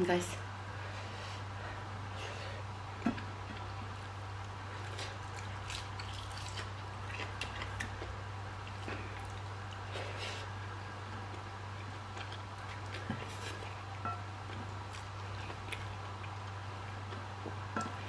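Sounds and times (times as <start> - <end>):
steady low hum: 0.0 - 18.0
wet chewing and lip smacks: 4.4 - 9.9.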